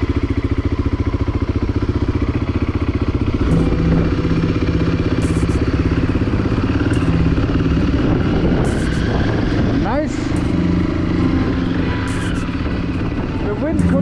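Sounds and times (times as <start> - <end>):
motorcycle pulling away: 0.0 - 14.0.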